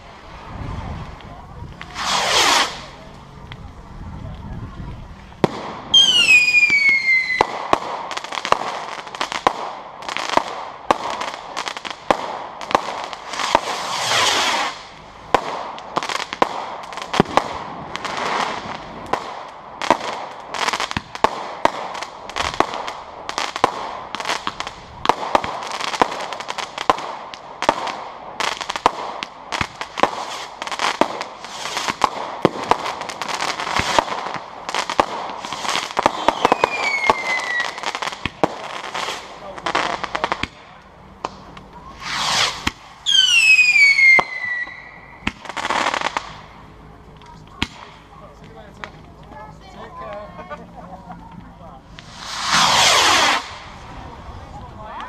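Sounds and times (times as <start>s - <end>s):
firework bangs and crackles: 0.0s - 55.0s
falling firework whistle: 1.8s - 2.9s, 5.9s - 7.5s, 13.4s - 14.9s, 36.0s - 37.8s, 42.0s - 45.3s, 52.0s - 53.7s
hissing whoosh: 1.8s - 3.0s, 41.3s - 45.0s, 51.9s - 54.5s.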